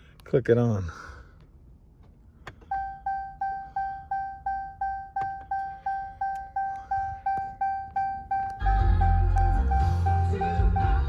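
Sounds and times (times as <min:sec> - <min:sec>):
dashboard warning chime beeping: 0:02.5 - 0:11.0.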